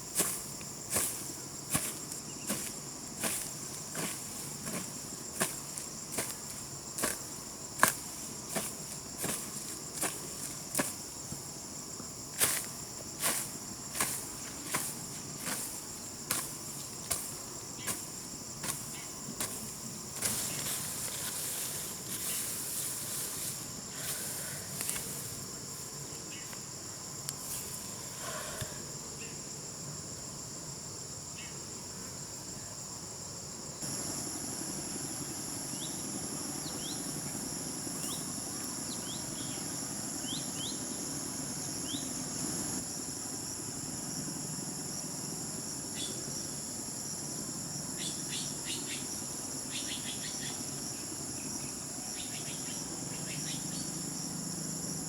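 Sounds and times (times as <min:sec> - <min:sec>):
crickets chirping: 0:00.0 - 0:55.0
hoe chopping into ground: 0:00.1 - 0:11.5, 0:12.4 - 0:25.2
scraping and rustling: 0:12.4 - 0:25.8.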